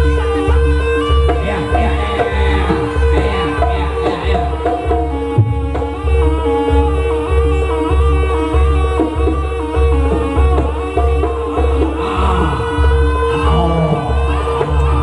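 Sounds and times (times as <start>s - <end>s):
hand drums beating: 0.0s - 15.0s
wavering melody: 0.0s - 15.0s.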